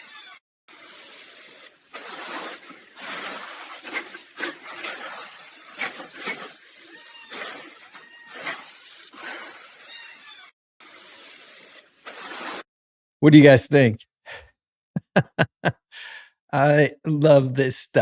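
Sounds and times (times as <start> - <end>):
short pitched animal cries: 0.0 - 12.6
loud animal hissing: 0.0 - 12.7.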